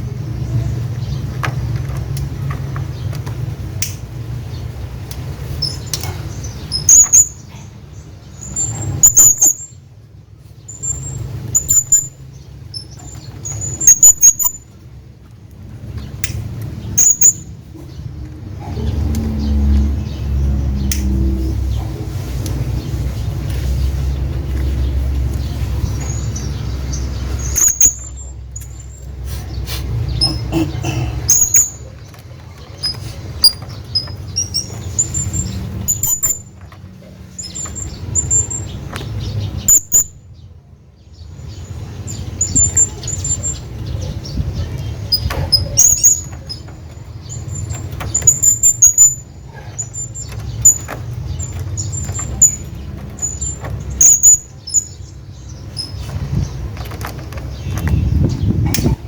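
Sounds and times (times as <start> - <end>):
parrot chirping: 5.5 - 7.5, 8.3 - 9.8, 10.7 - 14.6, 16.8 - 17.5, 25.4 - 29.0, 29.9 - 36.5, 37.4 - 40.2, 41.5 - 56.2.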